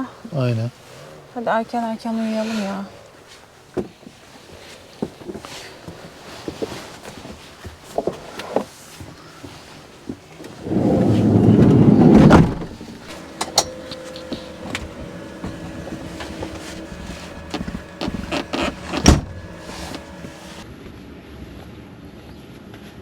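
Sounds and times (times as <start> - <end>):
sliding door rolling on track: 10.4 - 20.6
clicks and knocks: 10.5 - 20.6.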